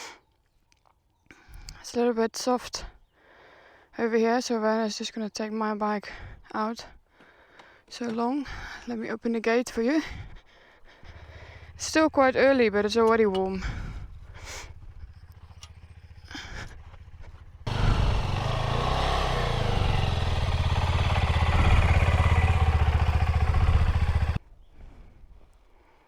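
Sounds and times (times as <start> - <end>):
motorcycle engine running: 11.0 - 24.4.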